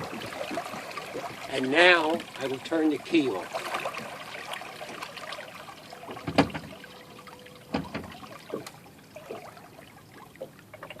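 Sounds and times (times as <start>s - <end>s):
water lapping at hull: 0.0s - 11.0s
faint steady tone: 0.5s - 11.0s
outboard engine lower unit clank: 5.9s - 8.8s
faint knocks: 6.1s - 6.8s, 7.7s - 8.7s.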